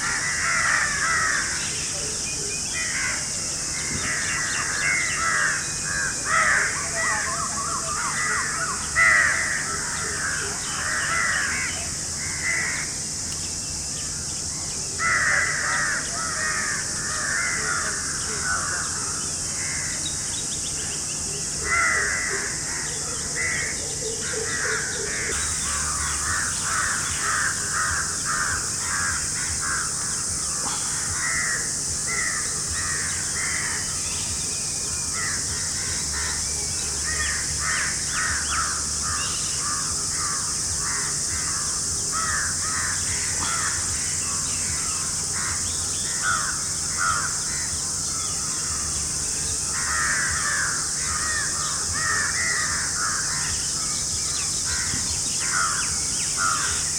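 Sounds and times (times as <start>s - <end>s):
steady high-pitched hiss: 0.0s - 56.9s
birds calling harshly: 23.4s - 56.9s.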